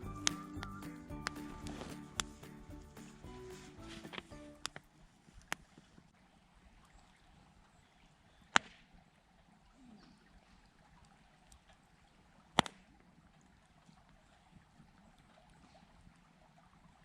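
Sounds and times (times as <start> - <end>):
faint background hiss: 0.0 - 6.8.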